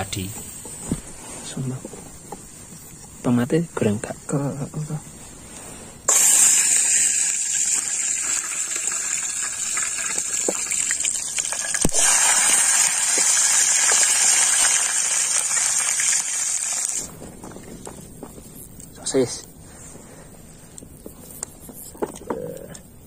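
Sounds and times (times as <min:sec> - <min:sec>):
oil popping: 0:06.1 - 0:17.1
vegetables sizzling in hot oil: 0:06.1 - 0:17.1.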